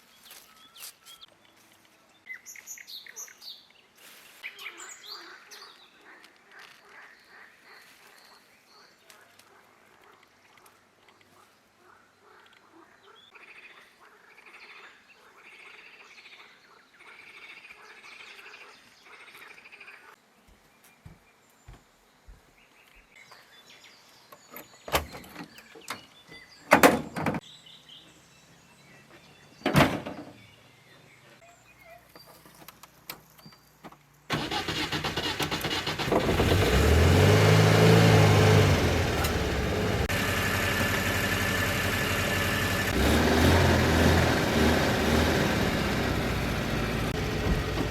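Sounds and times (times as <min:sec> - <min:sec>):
vehicle engine starting and running: 0:34.3 - 0:47.9.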